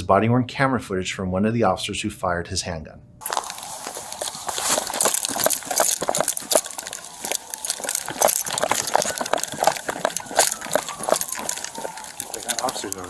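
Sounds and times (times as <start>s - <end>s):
duty gear clicking and rattling: 3.2s - 13.0s
footsteps: 3.2s - 13.0s.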